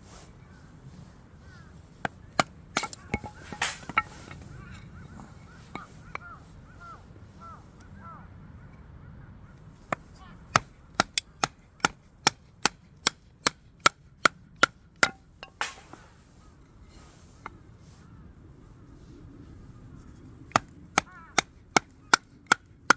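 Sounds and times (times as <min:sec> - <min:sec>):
wood cracking: 0:01.4 - 0:06.4, 0:09.9 - 0:16.3
firewood splitting knocks: 0:01.8 - 0:06.3, 0:09.9 - 0:16.2, 0:20.5 - 0:22.9.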